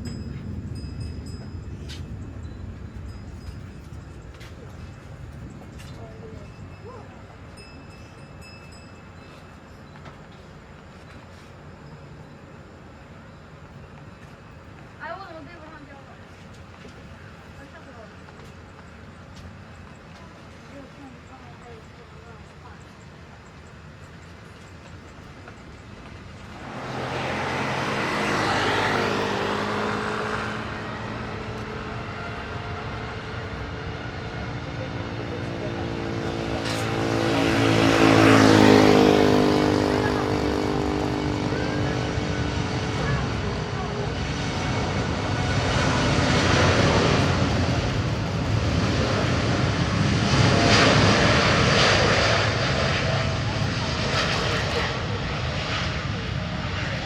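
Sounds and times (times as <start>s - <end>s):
jet engines at takeoff power: 0.0s - 57.0s
vehicle passing close by: 26.4s - 57.0s.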